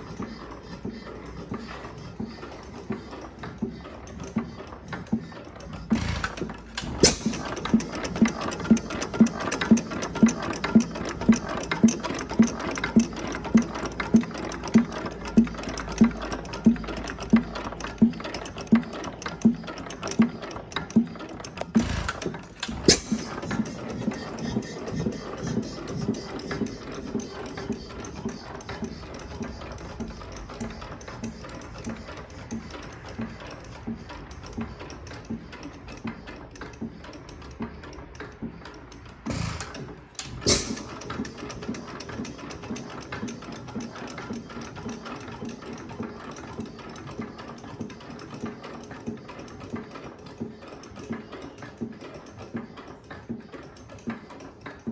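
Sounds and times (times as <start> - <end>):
hit-and-miss engine beats: 5.8 - 14.0, 21.3 - 30.2, 39.2 - 42.0
sharp click: 5.9 - 7.8, 21.6 - 23.8, 39.3 - 41.3.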